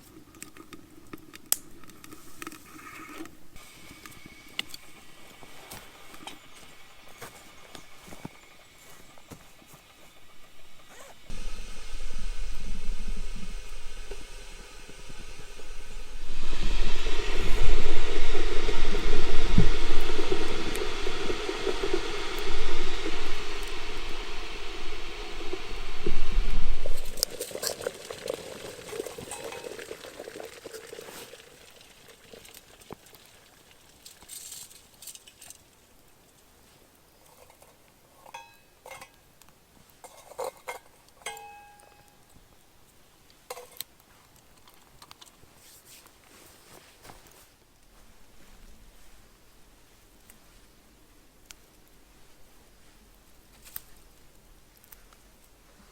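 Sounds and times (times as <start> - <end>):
water pouring and splashing: 13.4 - 35.8.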